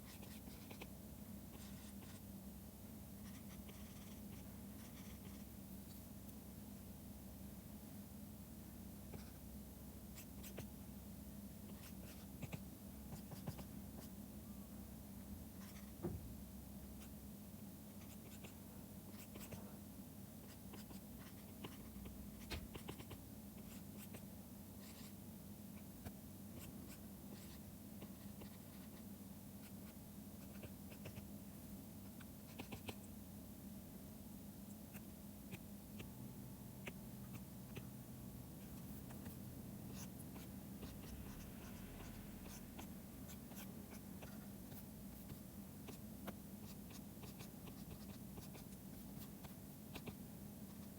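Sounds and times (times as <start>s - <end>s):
stylus scratching on tablet: 0.0s - 0.9s, 1.5s - 2.3s, 3.2s - 5.5s, 18.0s - 19.7s, 20.4s - 24.2s, 26.0s - 31.3s, 32.0s - 33.0s, 38.6s - 50.9s
steady low hum: 0.0s - 50.9s.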